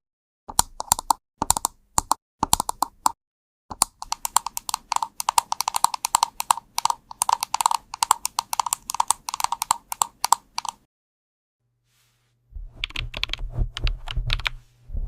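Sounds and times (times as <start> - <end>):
typing on a keyboard: 0.5 - 3.1, 3.7 - 10.9, 12.8 - 14.6.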